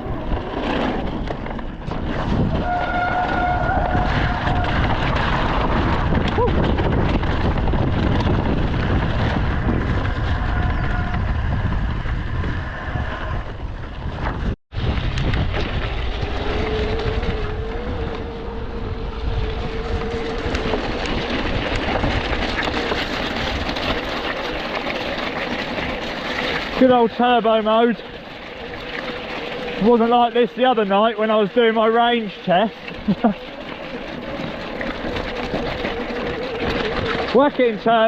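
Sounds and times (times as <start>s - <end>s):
bike trail rumble: 0.0s - 38.0s
wind buffeting microphone: 0.0s - 38.0s
electric motor whining: 15.2s - 22.0s.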